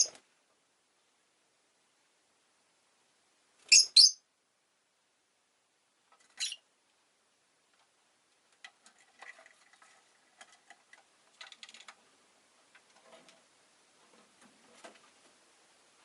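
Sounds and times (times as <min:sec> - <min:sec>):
bird chirp: 0:00.0 - 0:00.2, 0:03.6 - 0:04.2, 0:06.3 - 0:06.7.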